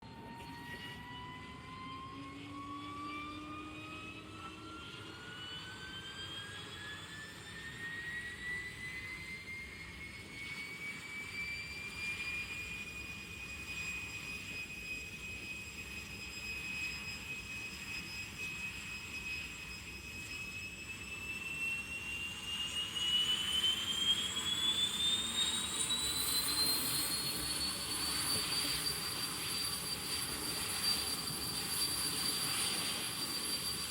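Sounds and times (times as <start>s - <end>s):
turbojet whine spooling up: 0.0s - 33.9s.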